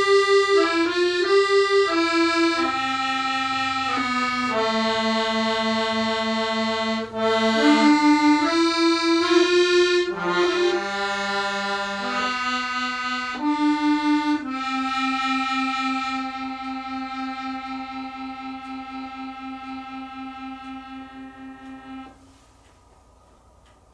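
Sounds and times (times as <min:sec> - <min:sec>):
accordion playing slow melody: 0:00.0 - 0:22.6.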